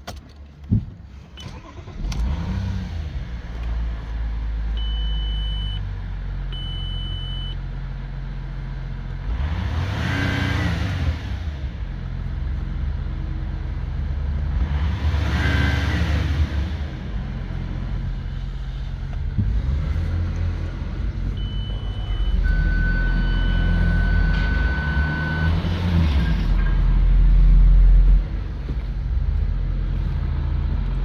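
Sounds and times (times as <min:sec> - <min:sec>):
diesel engine starting and idling: 0:00.0 - 0:31.0
engine revving: 0:01.5 - 0:04.9, 0:09.2 - 0:31.0
steady beeps: 0:21.4 - 0:25.8.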